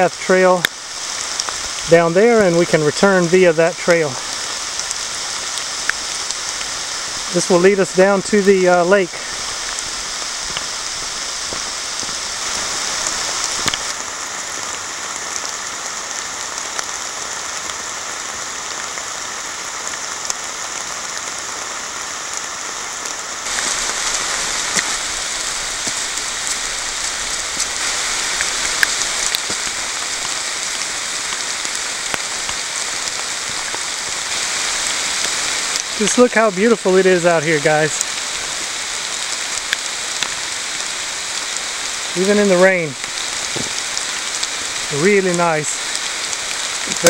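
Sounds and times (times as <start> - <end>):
rain falling through leaves: 0.0 - 47.0
sharp ticks of raindrops: 0.0 - 47.0.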